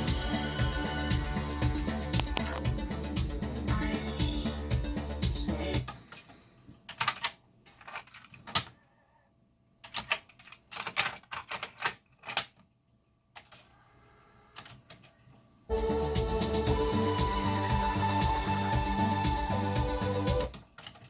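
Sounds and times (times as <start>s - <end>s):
music playing through deck: 0.0s - 5.8s, 15.7s - 20.5s.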